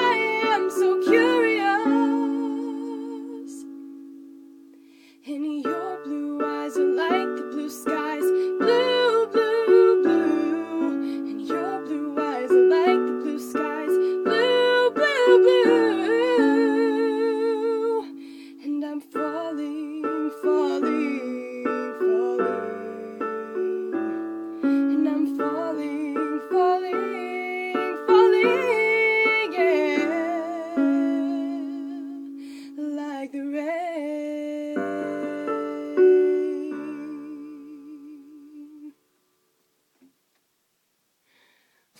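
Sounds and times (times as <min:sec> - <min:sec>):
person singing with vibrato: 0:00.0 - 0:04.2, 0:04.8 - 0:39.1
sustained piano chords: 0:00.0 - 0:33.4.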